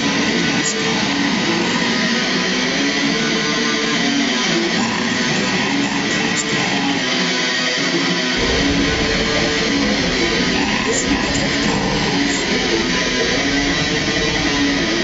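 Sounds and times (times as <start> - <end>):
black metal music: 8.4 - 15.0.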